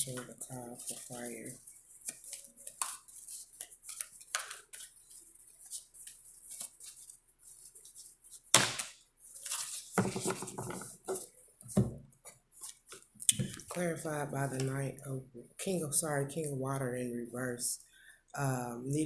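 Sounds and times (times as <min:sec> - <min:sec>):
cards shuffling and clicking: 0:00.0 - 0:07.1
card slapping on table: 0:08.5 - 0:08.9.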